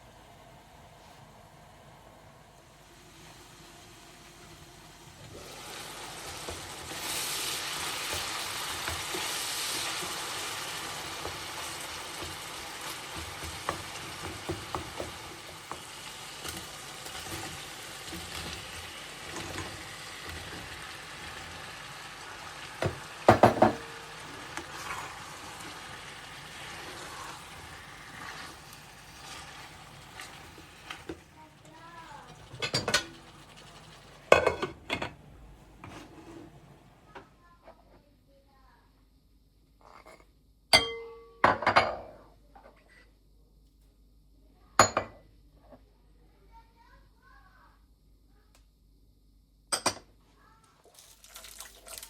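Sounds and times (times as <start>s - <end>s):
food sizzling in frying pan: 0.0s - 37.2s, 50.8s - 52.0s.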